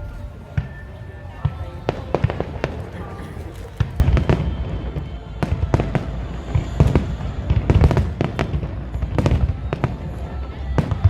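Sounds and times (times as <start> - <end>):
low rumble: 0.0 - 1.0
fireworks bangs: 0.0 - 11.0.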